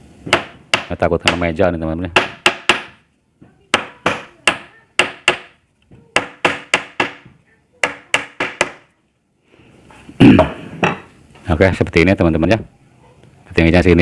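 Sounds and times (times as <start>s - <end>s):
hammer tapping nails: 2.2s - 3.0s, 6.2s - 8.8s.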